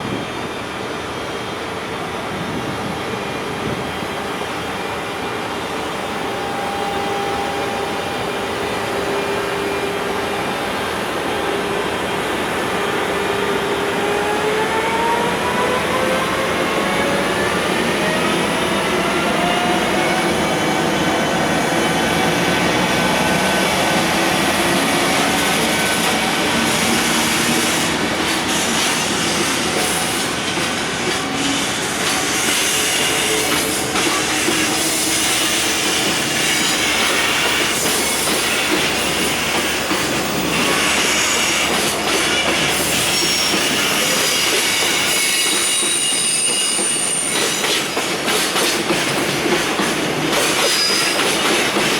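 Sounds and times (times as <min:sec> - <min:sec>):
electric locomotive motors whining: 0:03.6 - 0:48.0
train wheels clacking over rail joints: 0:22.6 - 0:51.9
high wheel squeal: 0:31.4 - 0:47.8, 0:50.7 - 0:51.4.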